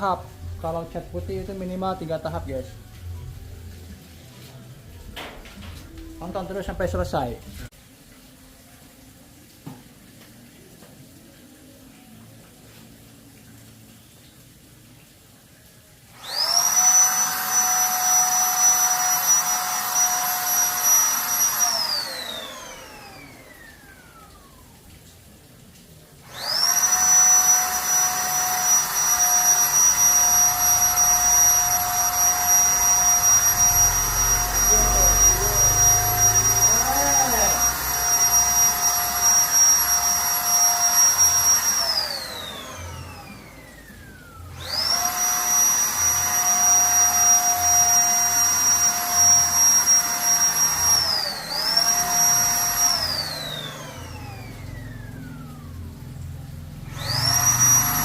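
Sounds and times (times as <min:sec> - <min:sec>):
paint spray gun motor whining: 0:16.2 - 0:24.7, 0:26.2 - 0:56.0, 0:56.8 - 0:58.0.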